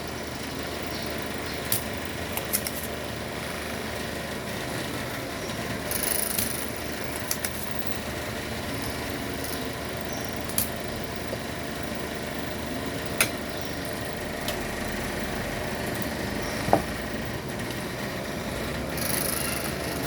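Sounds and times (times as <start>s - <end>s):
background hum: 0.0s - 20.0s
small tools clicking: 1.6s - 3.0s, 5.9s - 8.0s, 8.8s - 10.8s, 18.9s - 20.0s.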